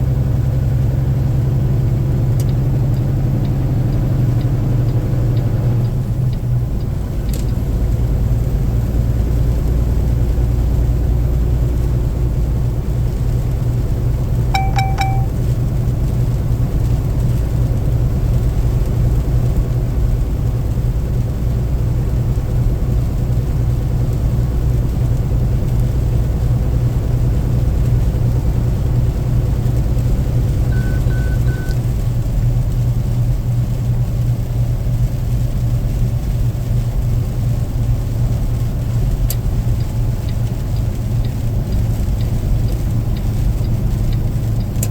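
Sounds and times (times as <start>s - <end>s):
car road and engine rumble: 0.0s - 44.9s
electronic beeps: 14.6s - 15.3s, 30.7s - 31.8s.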